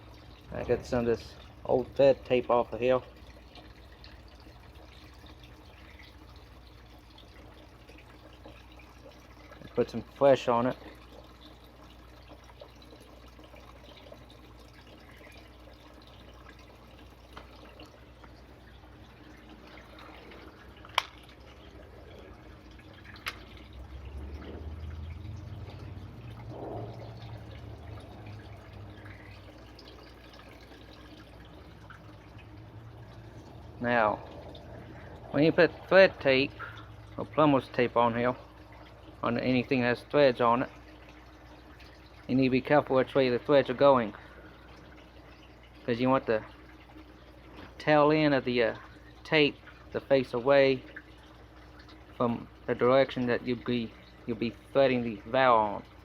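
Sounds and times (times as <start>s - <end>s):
low steady hum: 0.0s - 56.0s
trickle of running water: 0.0s - 56.0s
low hum: 17.8s - 37.4s.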